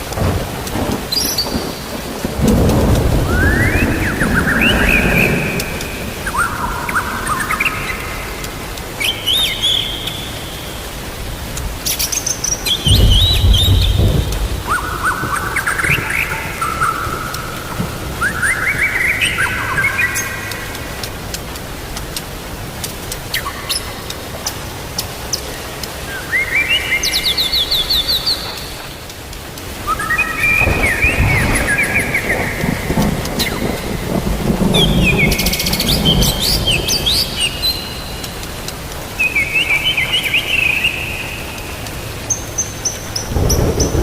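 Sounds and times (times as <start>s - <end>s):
thunder rumbling: 0.0s - 9.0s, 12.6s - 23.2s, 27.1s - 39.1s, 43.1s - 44.0s
steady rainfall: 0.0s - 44.0s
songbird singing: 0.2s - 44.0s
songbird whistling: 3.3s - 8.1s, 12.6s - 20.4s, 29.8s - 32.6s.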